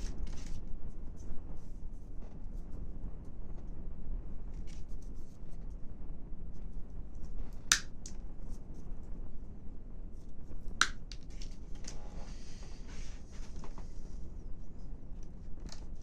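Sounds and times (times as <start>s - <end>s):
wooden craft sticks clicking: 7.6s - 8.2s, 10.8s - 11.5s.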